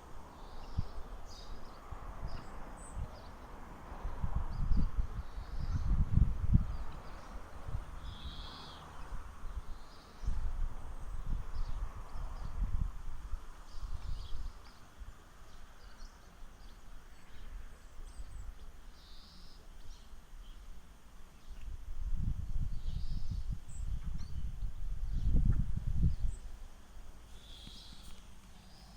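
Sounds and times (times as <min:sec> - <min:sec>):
birds chirping faintly: 0:00.0 - 0:06.0, 0:06.6 - 0:12.7, 0:13.5 - 0:21.8, 0:22.5 - 0:28.9
wind buffeting the microphone: 0:00.1 - 0:15.2, 0:21.4 - 0:28.9.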